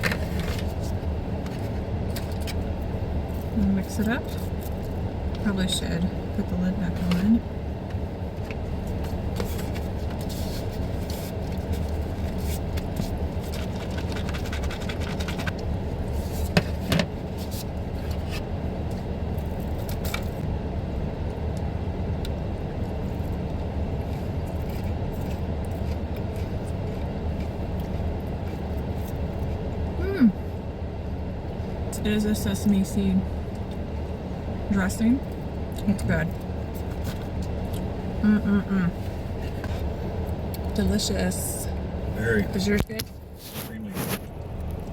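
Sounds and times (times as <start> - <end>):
low engine hum: 0.0 - 44.9.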